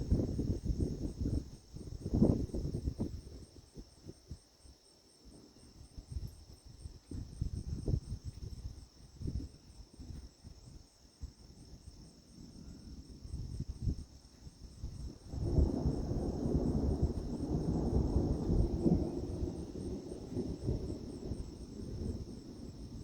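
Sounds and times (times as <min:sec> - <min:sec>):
insects trilling: 0:00.0 - 0:23.0
thunder rumbling: 0:14.8 - 0:23.0.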